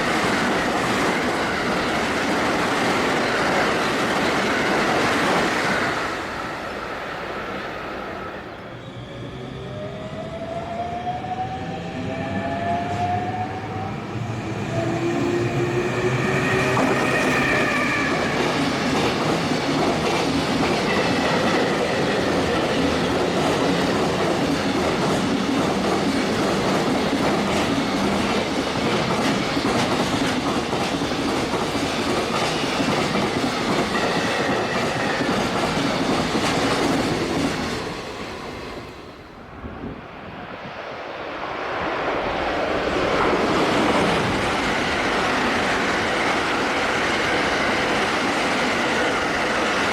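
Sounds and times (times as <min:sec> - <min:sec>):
train rumbling: 0:00.0 - 0:49.9
train wheel clatter: 0:14.7 - 0:38.0.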